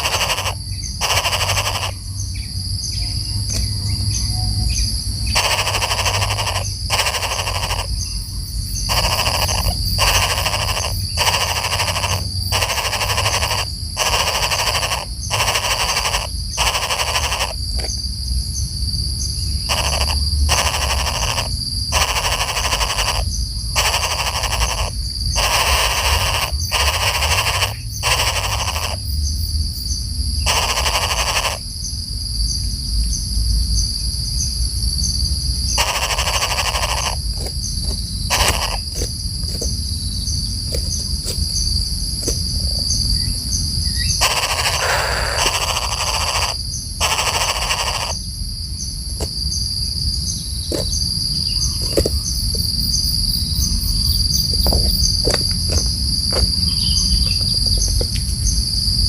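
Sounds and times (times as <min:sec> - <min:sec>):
bursts of noise: 0:00.0 - 0:02.0, 0:05.3 - 0:08.0, 0:08.9 - 0:17.6, 0:19.7 - 0:29.0, 0:30.4 - 0:31.6, 0:44.2 - 0:48.2
insects trilling: 0:00.0 - 0:59.0.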